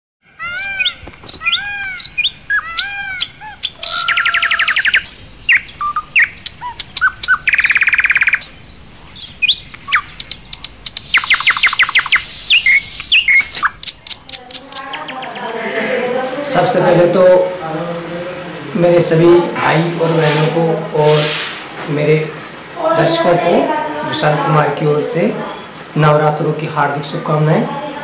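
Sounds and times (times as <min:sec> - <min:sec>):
bird chirps: 0:00.3 - 0:16.0
bird trills: 0:00.3 - 0:16.0
birds whistling calls: 0:00.3 - 0:16.2, 0:25.3 - 0:26.0.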